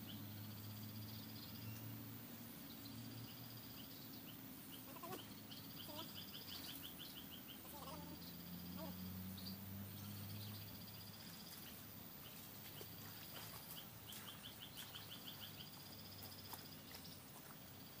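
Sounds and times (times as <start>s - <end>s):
insect buzz: 0.0s - 18.0s
small animal calls: 4.7s - 9.2s.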